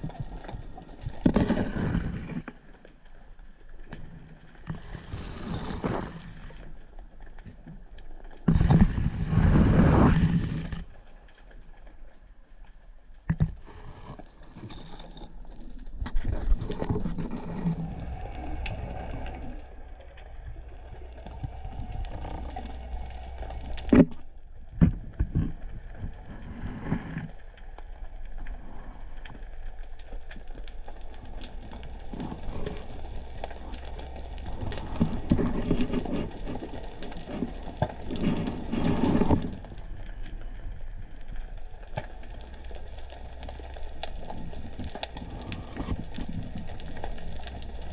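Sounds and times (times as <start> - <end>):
underwater clicks and knocks: 0.0 - 2.6, 13.2 - 27.4, 30.3 - 40.6
underwater rumble of moving water: 0.0 - 47.9
water swish: 0.0 - 47.9.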